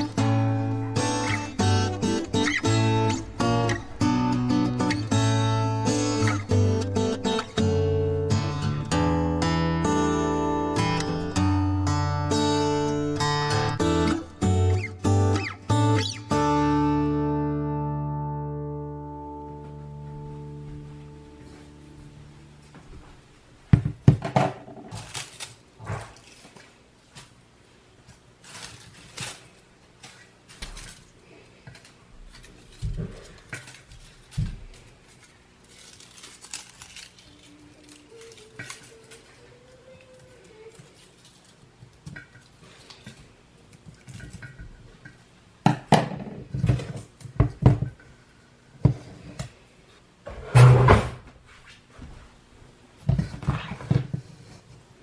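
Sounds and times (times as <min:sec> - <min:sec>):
faint music: 0:00.0 - 0:23.9, 0:28.4 - 0:44.7
objects knocking and clattering: 0:23.7 - 0:25.1, 0:44.0 - 0:48.0.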